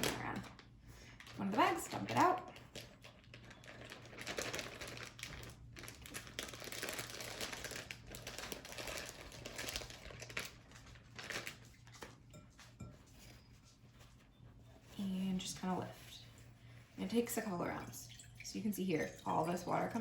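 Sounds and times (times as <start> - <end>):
bag crinkling and rustling: 0.0 - 12.2.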